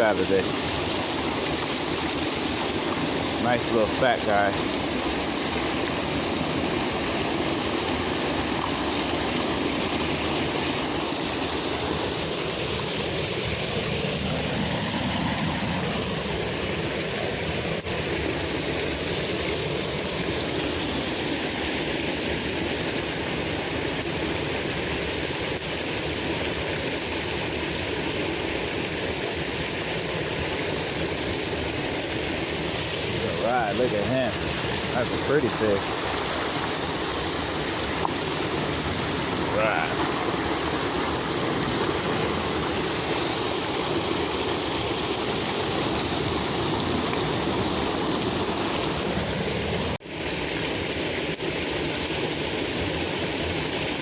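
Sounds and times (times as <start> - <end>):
creek water rushing: 0.0 - 54.0.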